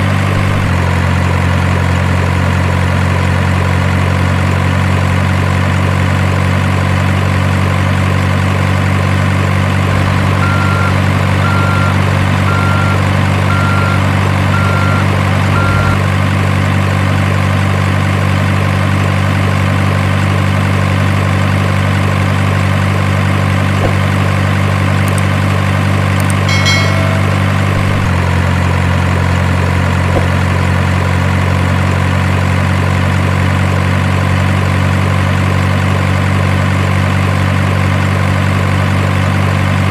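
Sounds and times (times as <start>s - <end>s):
diesel truck engine idling: 0.0s - 39.9s
short beeps: 10.4s - 16.0s, 26.4s - 28.1s.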